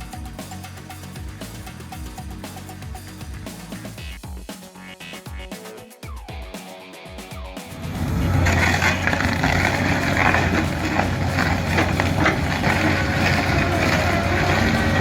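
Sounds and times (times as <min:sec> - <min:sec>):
music: 0:00.0 - 0:15.0
heavy machine engine running: 0:07.7 - 0:15.0.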